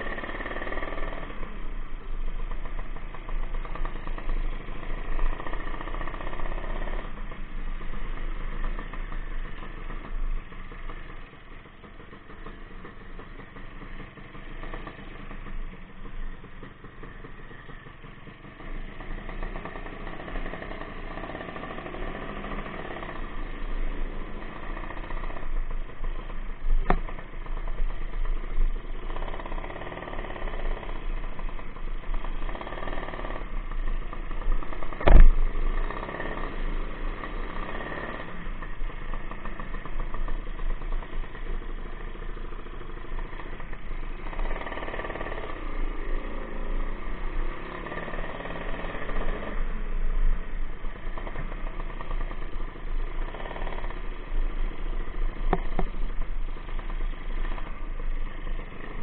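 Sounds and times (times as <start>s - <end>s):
motorcycle engine revving: 0.0s - 59.0s
sharp knock: 35.0s - 35.4s.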